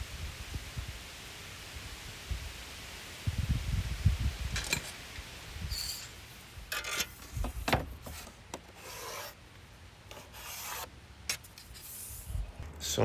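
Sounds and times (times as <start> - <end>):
hand tool scraping wood: 6.7 - 9.4, 10.1 - 12.3.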